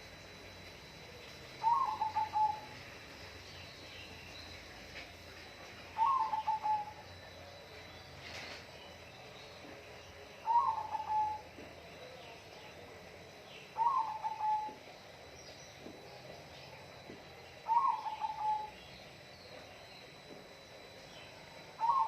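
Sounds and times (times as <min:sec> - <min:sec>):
bird calling: 0:01.6 - 0:02.8, 0:06.0 - 0:07.2, 0:10.4 - 0:12.4, 0:13.7 - 0:14.8, 0:17.6 - 0:19.5, 0:21.2 - 0:22.0.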